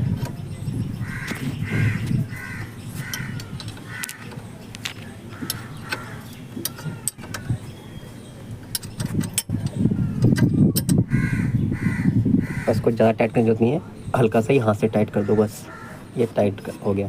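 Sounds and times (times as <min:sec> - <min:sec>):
crows cawing: 0:01.0 - 0:04.4, 0:05.3 - 0:07.1, 0:11.1 - 0:12.9, 0:15.1 - 0:16.1
spanner clicking on a nut: 0:03.0 - 0:07.6, 0:08.6 - 0:11.1.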